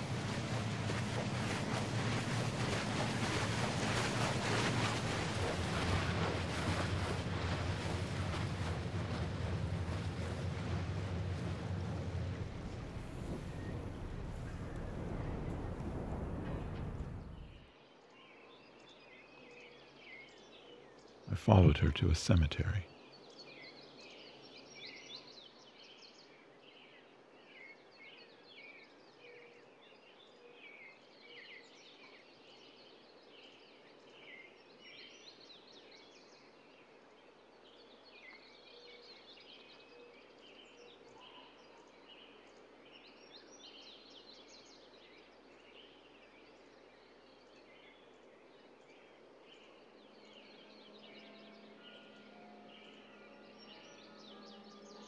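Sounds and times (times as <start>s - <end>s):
low steady hum: 0.0s - 17.6s
steady background hiss: 19.7s - 28.7s.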